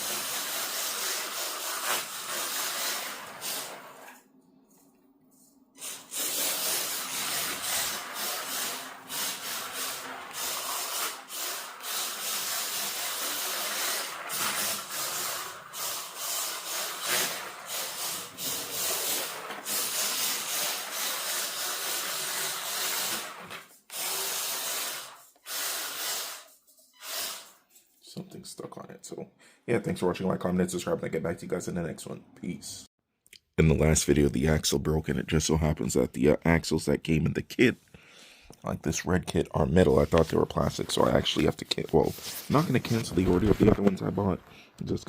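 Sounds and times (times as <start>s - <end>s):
tyres scrubbing: 5.8s - 22.8s, 39.8s - 44.5s
small electric motor running: 5.9s - 27.6s.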